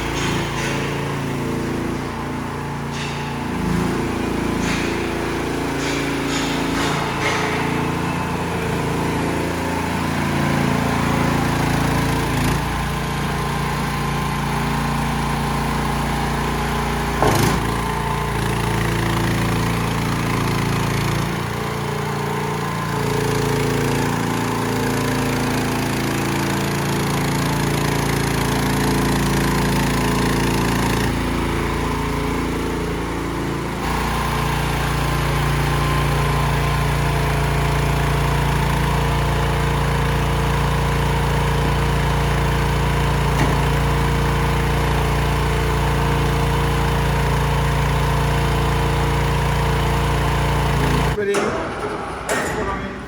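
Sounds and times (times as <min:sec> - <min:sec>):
small engine running: 0:00.0 - 0:51.2.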